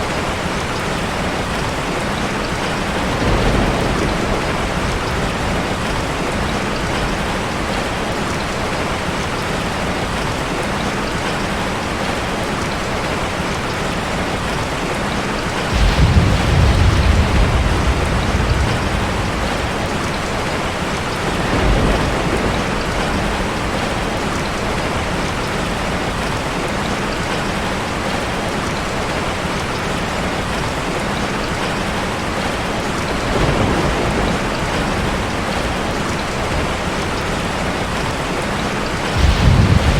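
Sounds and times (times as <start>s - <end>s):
heavy rain on a car: 0.0s - 39.9s
thunder rumbling: 0.5s - 8.8s, 15.5s - 26.3s, 31.7s - 39.9s.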